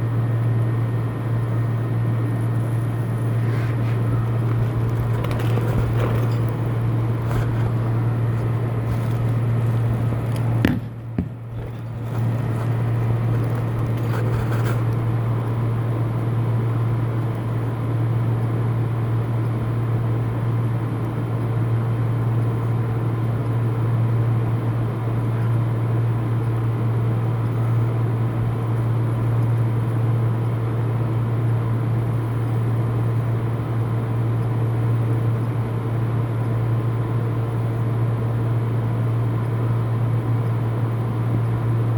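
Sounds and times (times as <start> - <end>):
low mechanical hum: 0.0 - 41.9.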